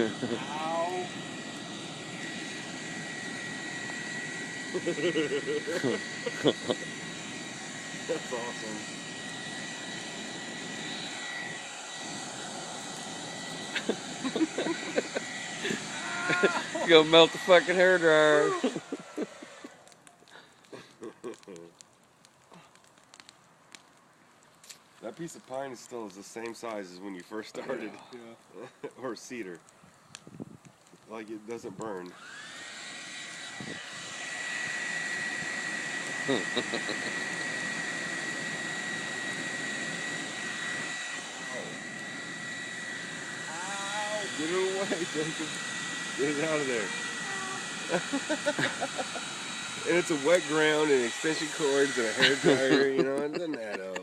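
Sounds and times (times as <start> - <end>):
hair dryer running: 0.0 - 19.9, 32.0 - 54.0.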